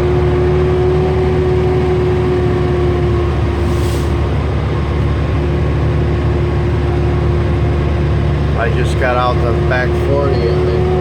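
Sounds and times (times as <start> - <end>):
heavy truck engine droning: 0.0 - 11.0
brief hiss: 3.6 - 4.2.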